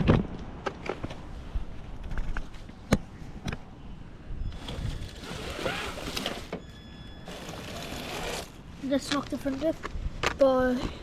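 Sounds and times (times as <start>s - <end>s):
toy car electric motor whirring: 4.6s - 6.5s, 7.3s - 8.6s.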